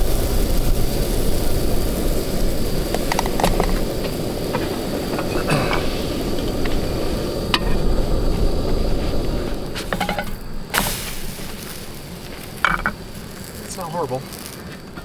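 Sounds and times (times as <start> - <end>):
batter frying in a pan: 0.0 - 15.0.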